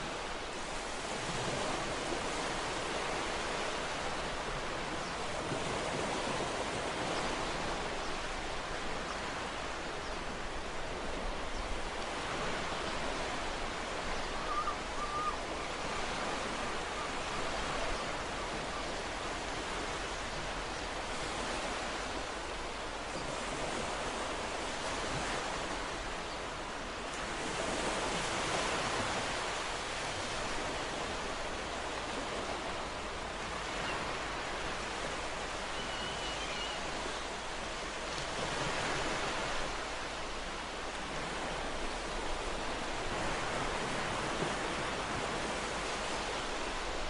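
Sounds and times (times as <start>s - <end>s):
ocean surf washing in: 0.0s - 14.2s
waves breaking: 0.0s - 47.0s.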